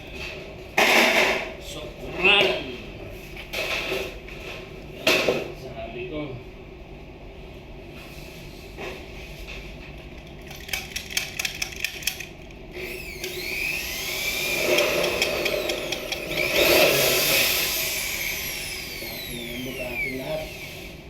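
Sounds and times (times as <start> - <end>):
electric power drill whining: 12.7 - 21.0.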